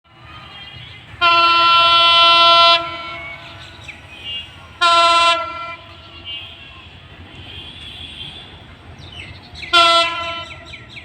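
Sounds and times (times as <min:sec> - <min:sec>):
low train rumble: 0:00.1 - 0:11.0
train horn blasts: 0:01.2 - 0:03.2, 0:04.8 - 0:06.5, 0:09.7 - 0:10.7.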